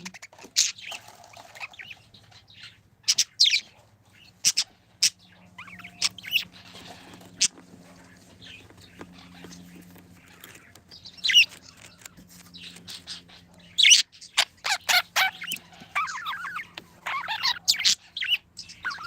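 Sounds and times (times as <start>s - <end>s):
budgies chirping: 0.0s - 19.0s.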